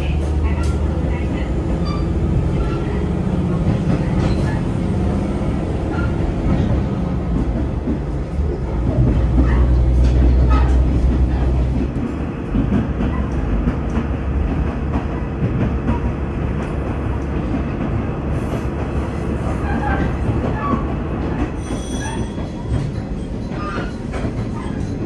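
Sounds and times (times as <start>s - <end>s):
diesel railcar engine and wheels: 0.0s - 25.0s.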